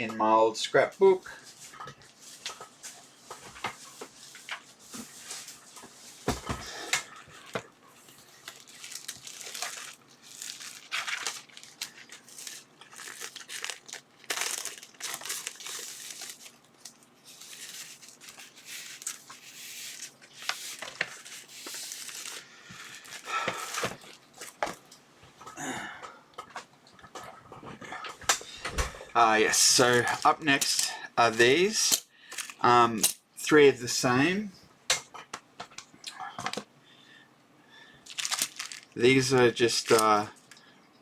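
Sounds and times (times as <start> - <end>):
packaging crinkling and rustling: 1.5 - 25.0, 26.4 - 31.5, 32.2 - 32.6, 38.0 - 40.6.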